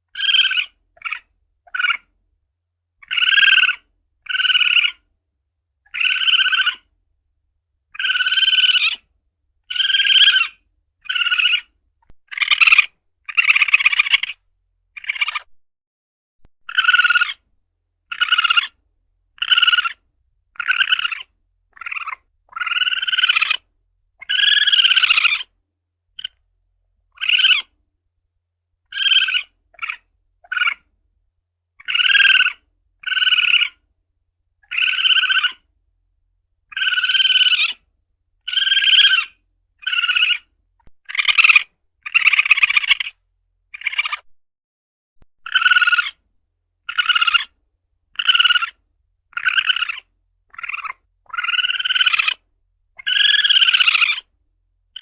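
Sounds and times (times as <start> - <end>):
civet high-pitched cries: 0.1 - 2.1, 3.0 - 5.0, 5.9 - 6.9, 8.0 - 9.0, 9.7 - 14.4, 15.0 - 15.5, 16.7 - 17.4, 18.1 - 18.8, 19.4 - 20.0, 20.6 - 25.5, 26.2 - 26.4, 27.1 - 27.7, 28.9 - 30.9, 31.8 - 33.8, 34.6 - 35.7, 36.7 - 37.8, 38.4 - 43.2, 43.8 - 44.3, 45.4 - 46.2, 46.8 - 52.4, 53.0 - 54.3.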